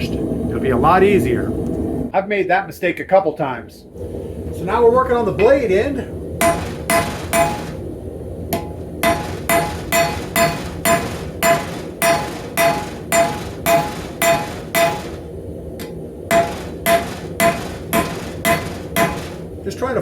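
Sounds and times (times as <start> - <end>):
hammer striking steel on anvil: 6.4 - 7.8, 8.5 - 15.2, 15.8 - 19.4.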